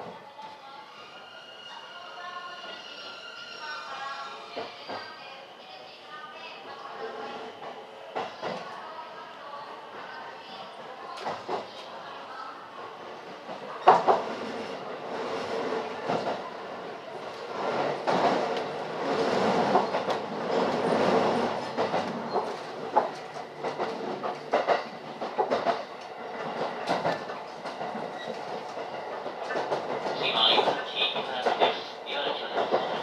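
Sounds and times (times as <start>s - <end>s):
train rolling rumble: 9.7s - 33.0s.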